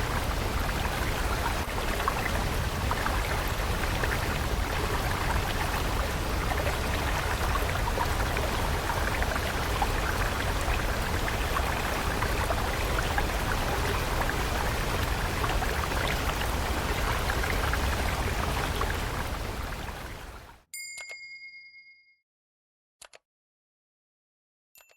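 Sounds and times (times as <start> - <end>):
stream water rushing: 0.0 - 20.5.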